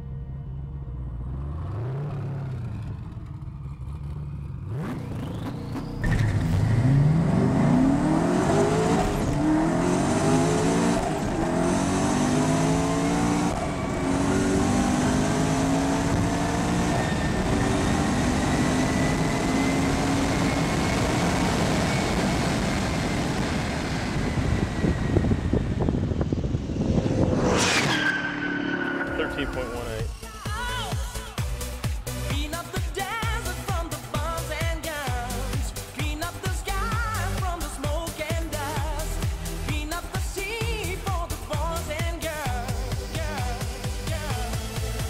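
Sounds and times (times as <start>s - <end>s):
car engine at full throttle: 0.0s - 45.0s
sharp sweep in pitch: 24.6s - 30.2s.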